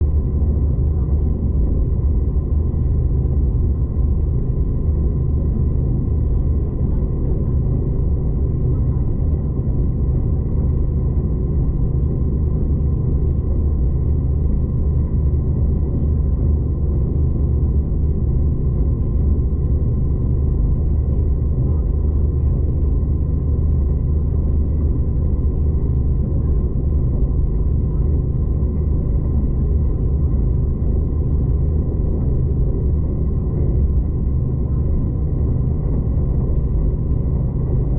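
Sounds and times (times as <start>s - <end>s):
faint steady whine: 0.0s - 37.9s.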